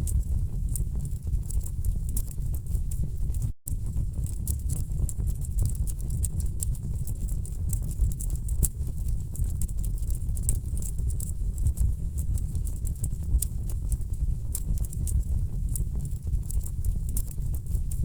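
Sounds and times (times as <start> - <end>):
wood fire crackling and popping: 3.7 - 18.0.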